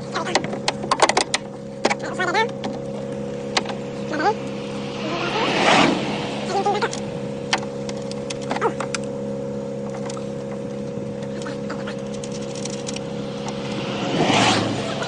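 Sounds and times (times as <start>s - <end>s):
vehicle engine idling: 0.0s - 15.0s
plastic parts clicking and knocking: 0.3s - 2.0s
brief rush of noise: 3.8s - 7.8s, 12.9s - 15.0s.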